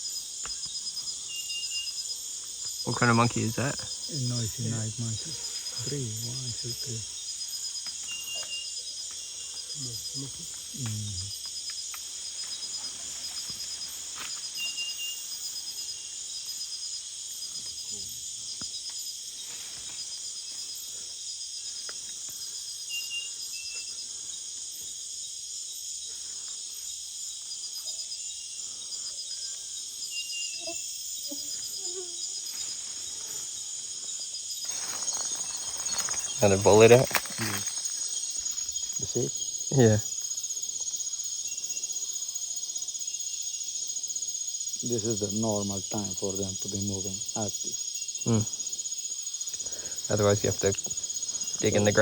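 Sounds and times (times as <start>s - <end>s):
crickets and insects trilling: 0.0s - 52.0s
faint short calls or rustles: 34.7s - 38.9s.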